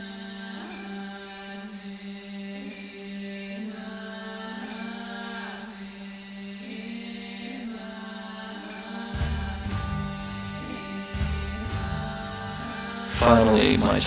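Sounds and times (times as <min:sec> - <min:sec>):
droning chant-like music: 0:00.0 - 0:14.0
deep bass tone: 0:09.2 - 0:14.0.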